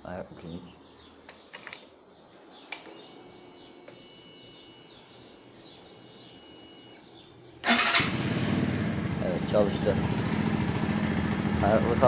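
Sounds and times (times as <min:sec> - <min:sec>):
small bird chirping: 0:00.5 - 0:07.6.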